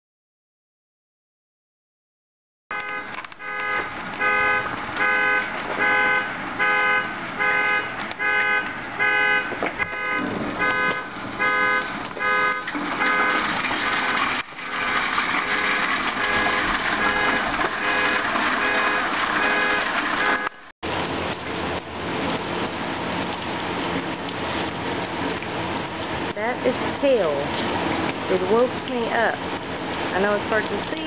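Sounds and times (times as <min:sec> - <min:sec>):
car alarm horn honking: 0:02.7 - 0:20.7
hail clattering: 0:09.7 - 0:31.0.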